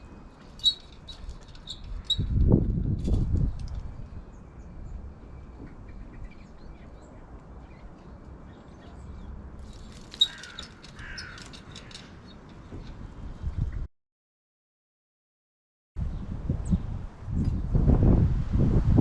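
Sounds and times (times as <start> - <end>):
harsh bird calls: 5.4 - 12.5.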